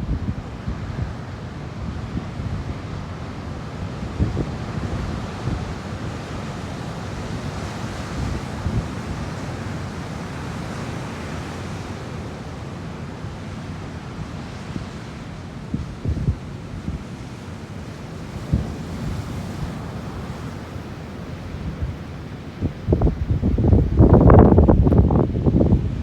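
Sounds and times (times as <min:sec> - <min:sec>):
ocean surf washing: 0:00.2 - 0:26.0
wind buffeting microphone: 0:18.3 - 0:26.0.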